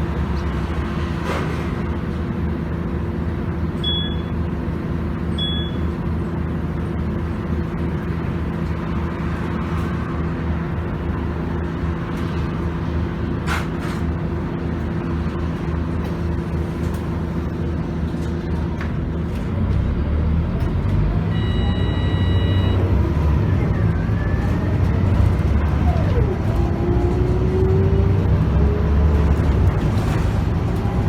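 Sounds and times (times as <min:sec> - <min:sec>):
bus diesel engine running: 0:00.0 - 0:31.0
electronic beep: 0:21.3 - 0:22.9.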